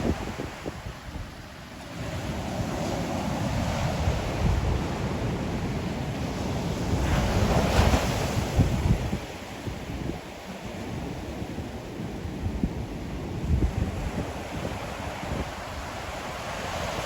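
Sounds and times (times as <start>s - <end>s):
ocean waves breaking: 0.0s - 17.0s
wind rumbling on microphone: 0.0s - 17.0s.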